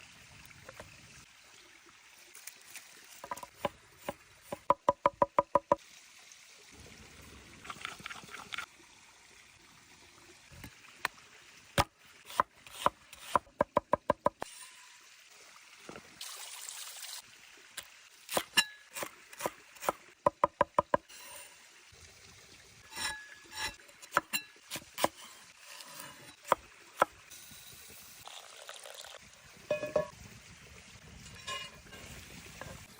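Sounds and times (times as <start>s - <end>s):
sharp knocks and taps: 3.3s - 5.8s, 13.6s - 14.4s, 20.3s - 21.1s.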